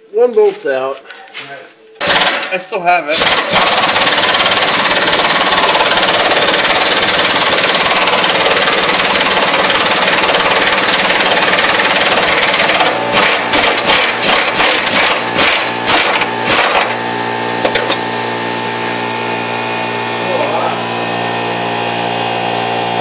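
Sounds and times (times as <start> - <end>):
impact wrench hammering: 2.0 - 2.6, 3.2 - 17.0, 17.6 - 18.0.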